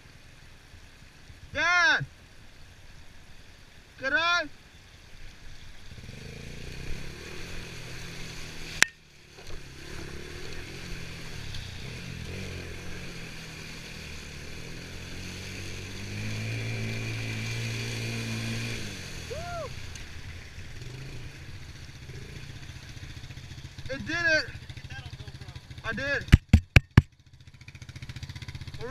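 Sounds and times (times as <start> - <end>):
small four-stroke engine running: 5.9 - 28.9.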